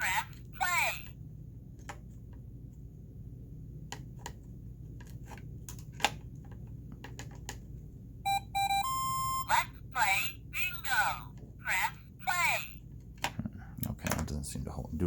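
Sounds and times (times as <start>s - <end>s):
short electronic beep: 8.3s - 9.5s.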